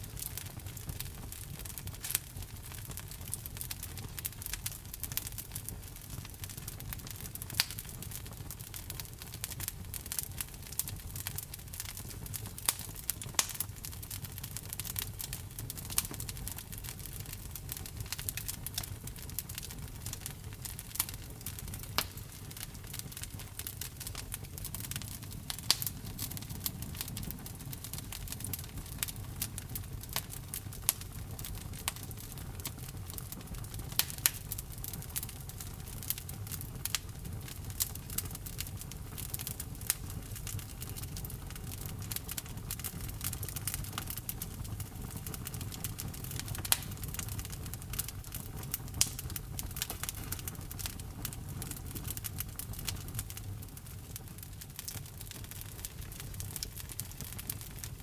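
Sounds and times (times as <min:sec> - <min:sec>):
low rumble of flames: 0:00.0 - 0:58.0
wood fire crackling: 0:00.0 - 0:58.0
logs popping: 0:20.2 - 0:30.3.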